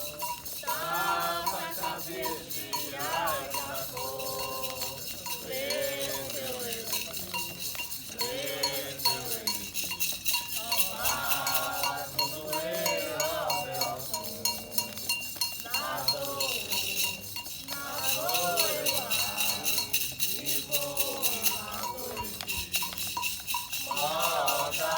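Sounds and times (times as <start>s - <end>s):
metal bell struck rhythmically: 0.0s - 24.9s
voices singing a chant: 0.0s - 24.9s.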